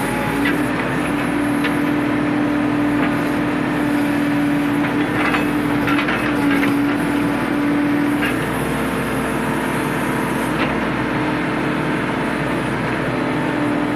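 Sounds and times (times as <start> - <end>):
diesel engine droning: 0.0 - 13.9.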